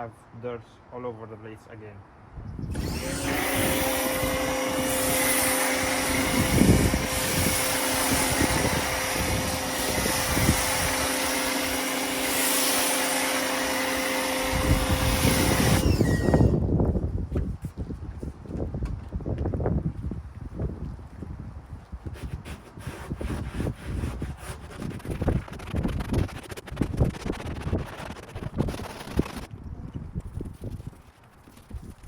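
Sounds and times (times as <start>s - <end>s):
pressure washer motor hum: 2.7s - 16.5s
hissing water spray: 3.3s - 16.4s.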